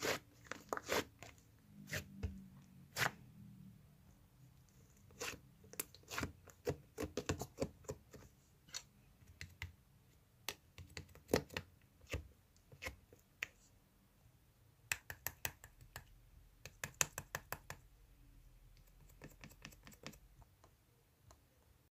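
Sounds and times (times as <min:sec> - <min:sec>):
sharp clicks and taps: 0:14.9 - 0:17.9.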